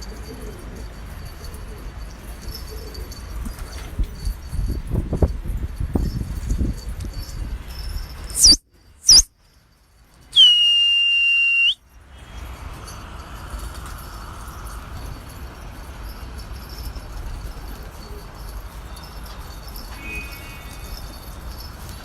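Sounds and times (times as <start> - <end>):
steady background noise: 8.1 - 22.0
shrill whistling: 8.3 - 9.3, 10.4 - 11.8.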